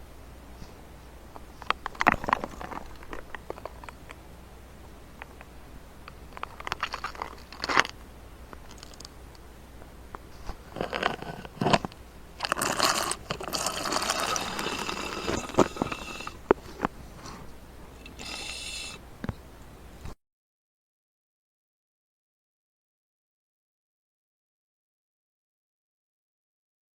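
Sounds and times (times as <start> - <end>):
slurping and swallowing: 10.6 - 19.4
pitched slurp: 12.4 - 19.1.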